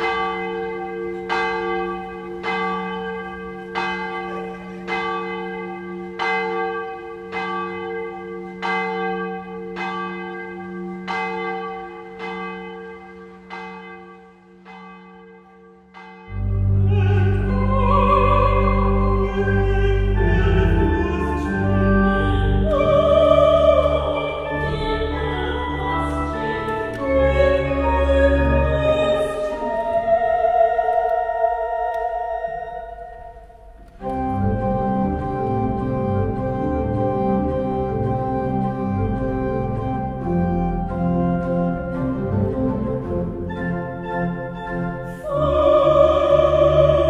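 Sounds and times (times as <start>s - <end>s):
church bell tolling: 0.0s - 22.9s
deep organ notes: 16.4s - 29.9s, 31.8s - 47.0s
women singing: 20.7s - 32.8s, 45.1s - 47.0s.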